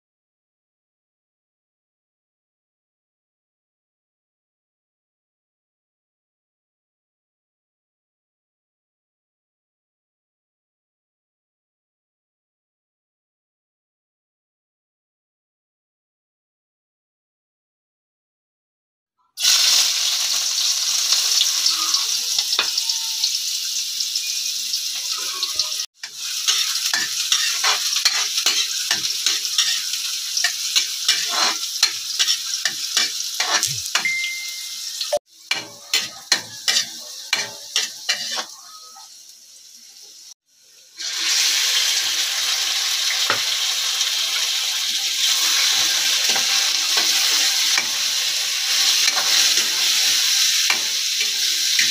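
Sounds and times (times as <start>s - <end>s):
food sizzling in hot oil: 19.4s - 51.9s
metal ladle scraping a wok: 25.4s - 34.0s, 35.4s - 38.6s, 45.3s - 51.9s.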